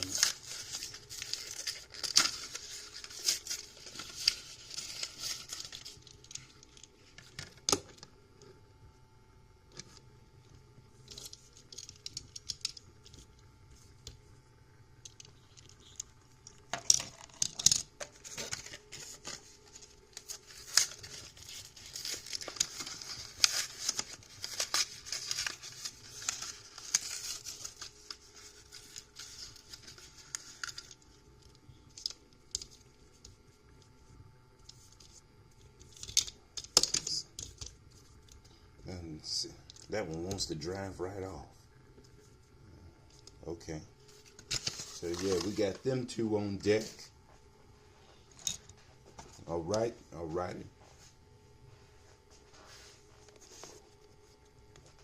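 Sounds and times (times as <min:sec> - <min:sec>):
plastic packaging tearing and crackling: 0:00.0 - 0:07.9, 0:15.6 - 0:32.9, 0:44.2 - 0:45.8.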